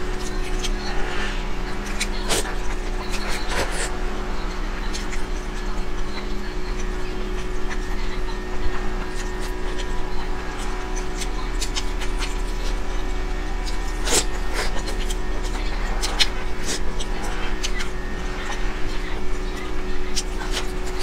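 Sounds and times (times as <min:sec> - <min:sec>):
low hum: 0:00.0 - 0:21.0
person chewing noodles: 0:06.7 - 0:21.0.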